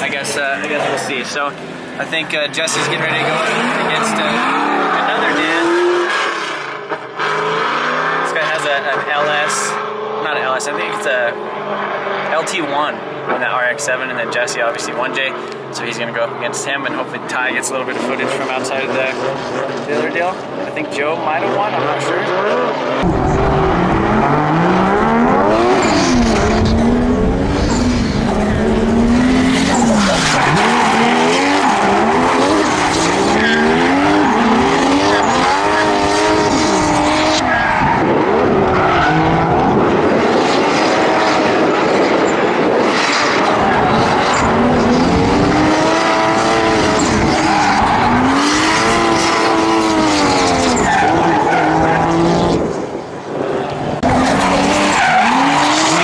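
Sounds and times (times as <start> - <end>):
car engines revving: 0.0 - 56.0
tyres squealing: 29.3 - 36.0, 54.0 - 56.0.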